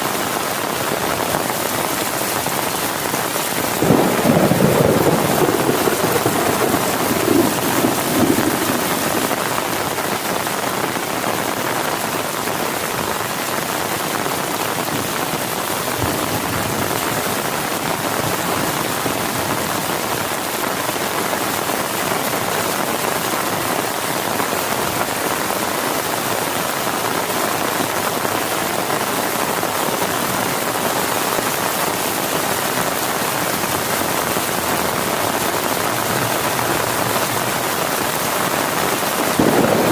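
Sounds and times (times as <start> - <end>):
heavy rain: 0.0 - 39.9
low thunder rumble: 3.8 - 9.8, 39.2 - 39.9.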